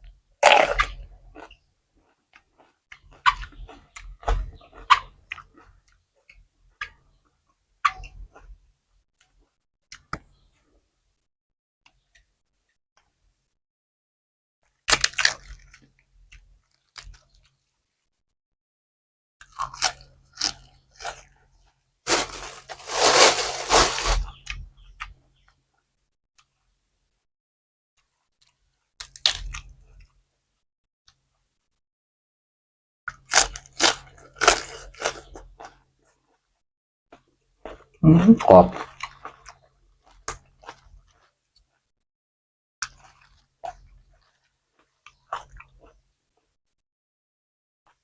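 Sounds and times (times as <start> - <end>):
chewing and crunching: 0.4 - 7.0, 19.4 - 21.5, 33.1 - 36.4, 37.2 - 37.9, 38.7 - 41.4, 42.8 - 46.0.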